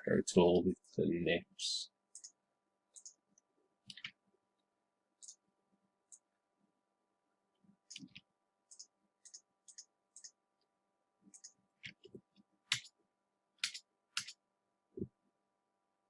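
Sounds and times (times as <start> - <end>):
computer mouse clicking: 2.1 - 2.4, 3.0 - 3.2, 3.9 - 4.2, 5.2 - 5.4, 7.9 - 10.4, 11.3 - 12.9, 13.6 - 14.4.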